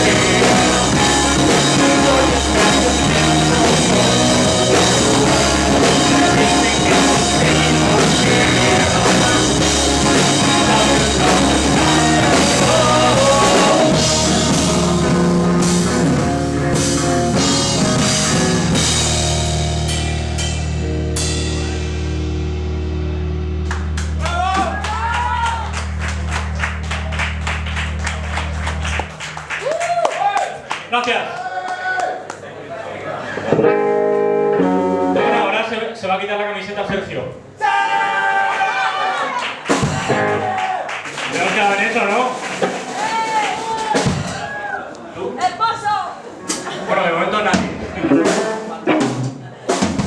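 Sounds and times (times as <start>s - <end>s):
electric guitars: 0.0s - 29.2s, 33.5s - 35.6s, 48.0s - 49.8s
bass guitar: 0.0s - 29.6s, 33.5s - 35.6s, 39.8s - 40.5s
drum kit: 0.0s - 29.7s, 39.7s - 44.8s, 47.5s - 50.0s.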